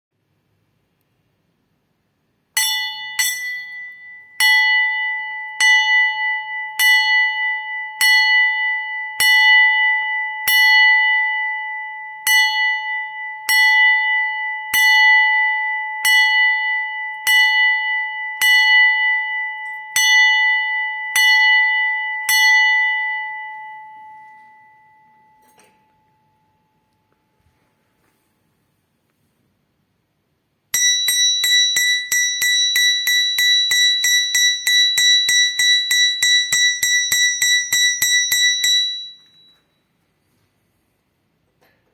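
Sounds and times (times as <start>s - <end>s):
bell ringing: 30.8s - 39.8s.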